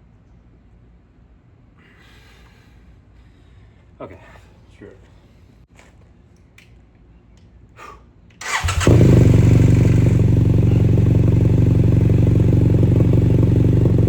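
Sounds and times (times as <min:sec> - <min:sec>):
starter cranking: 0:08.4 - 0:09.2
motorcycle engine idling: 0:08.4 - 0:14.0.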